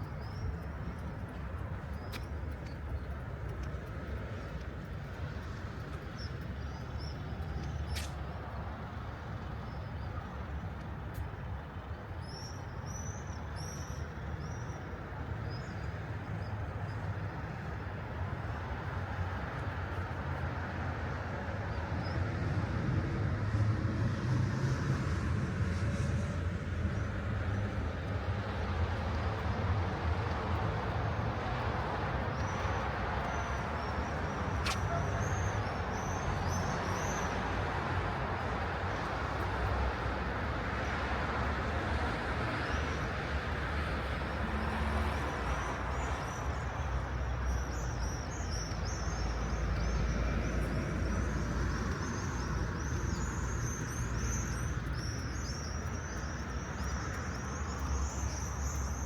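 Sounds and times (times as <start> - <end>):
cars passing with tyre hiss: 0.0 - 59.0
small birds chirping: 45.9 - 59.0.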